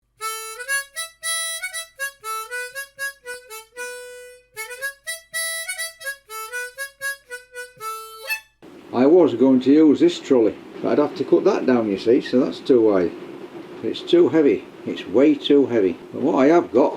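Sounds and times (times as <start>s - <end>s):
harmonica playing lively tune: 0.0s - 8.6s.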